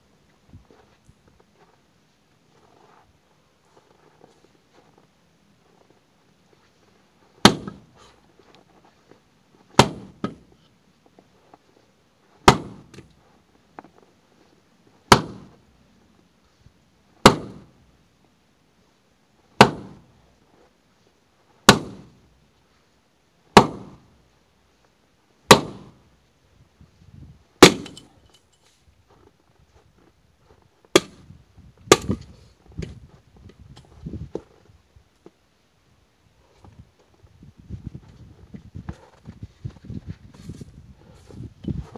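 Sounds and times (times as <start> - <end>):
axe splitting firewood: 7.4 - 8.0, 9.7 - 10.5, 12.4 - 13.2, 15.1 - 15.6, 17.2 - 17.8, 19.6 - 20.2, 21.7 - 22.3, 23.6 - 24.1, 25.5 - 26.0, 27.6 - 28.2, 30.5 - 33.0.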